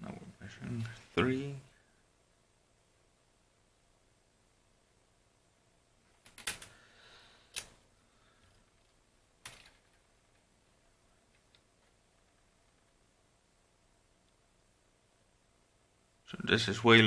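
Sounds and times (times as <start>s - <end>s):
small hard parts clicking: 6.2s - 6.8s, 7.5s - 7.8s, 8.4s - 10.5s.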